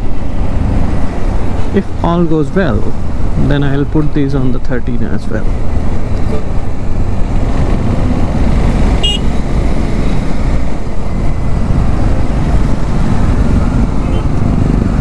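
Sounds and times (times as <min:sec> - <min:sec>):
road traffic: 0:00.0 - 0:15.0
motorcycle engine: 0:05.3 - 0:15.0
wind buffeting microphone: 0:05.4 - 0:15.0
vehicle horn toot: 0:09.0 - 0:09.3.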